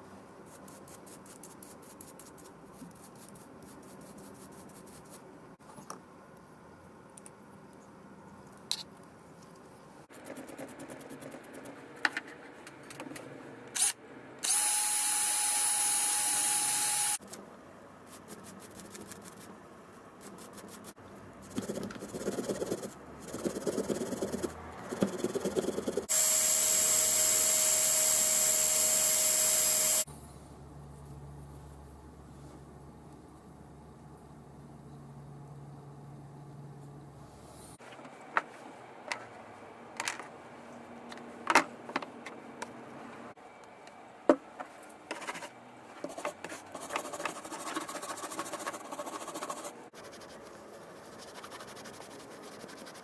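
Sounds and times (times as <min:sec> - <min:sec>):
power tool motor running: 0:14.4 - 0:17.2, 0:26.1 - 0:30.1.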